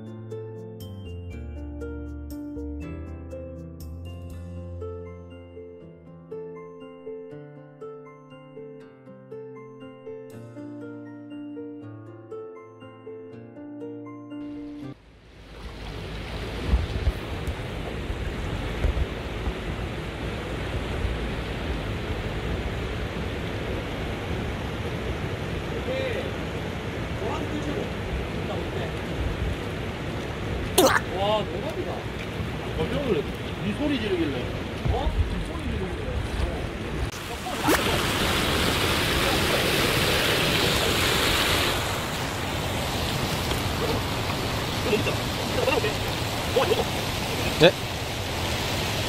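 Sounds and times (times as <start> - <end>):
water rushing in a stream: 15.0 - 35.0, 36.7 - 49.0.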